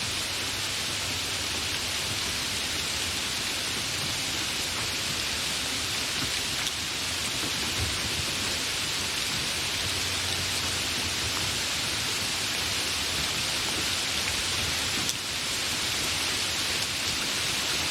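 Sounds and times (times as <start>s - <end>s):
heavy rain falling: 0.0s - 17.9s.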